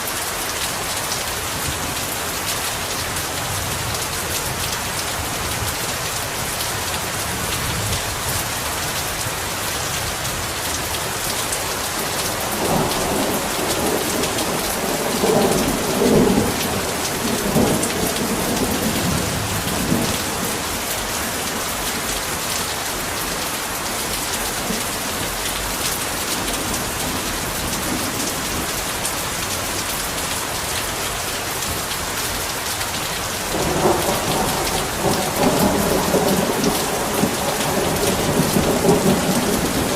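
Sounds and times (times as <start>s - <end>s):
heavy rain falling: 0.0s - 39.9s
rolling thunder: 33.5s - 39.9s.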